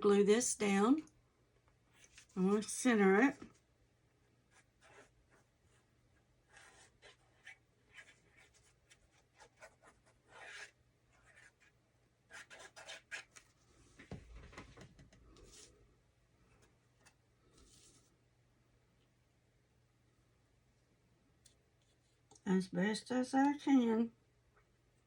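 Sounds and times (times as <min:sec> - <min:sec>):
paper rustling and tapping: 0:13.2 - 0:15.7.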